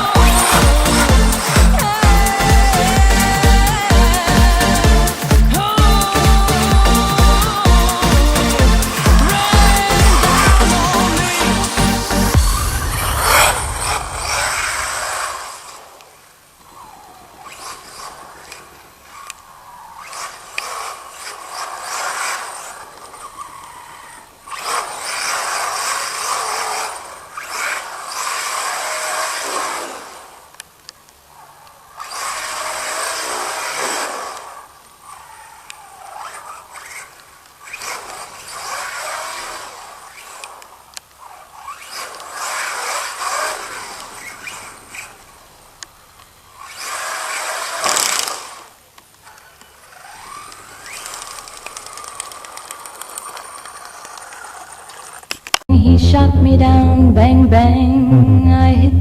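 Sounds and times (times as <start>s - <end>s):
electric motor whining: 0.0s - 15.2s.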